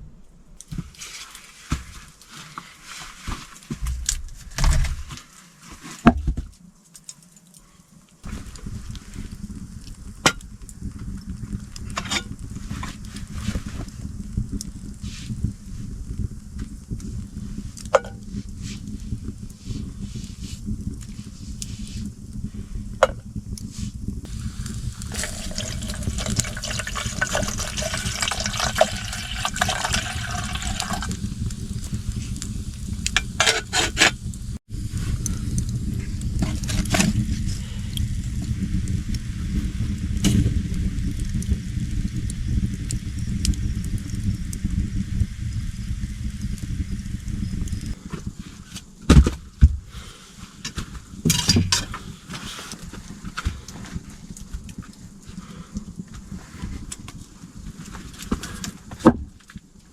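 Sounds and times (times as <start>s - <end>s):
steady low rumble: 3.8s - 5.2s, 8.2s - 50.1s
water splashing and trickling: 24.3s - 31.9s.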